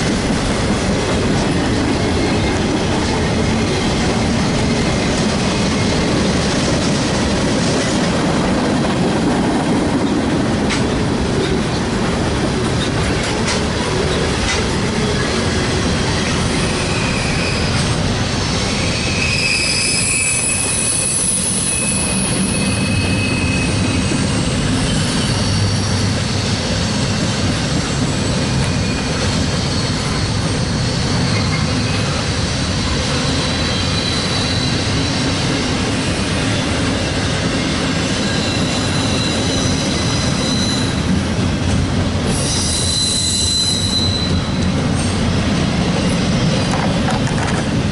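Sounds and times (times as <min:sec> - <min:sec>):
railroad cars rolling: 0:00.0 - 0:47.9
wheel squeal: 0:16.3 - 0:18.0, 0:18.6 - 0:26.6, 0:28.7 - 0:32.2, 0:33.2 - 0:35.4, 0:38.1 - 0:41.2, 0:42.3 - 0:45.2.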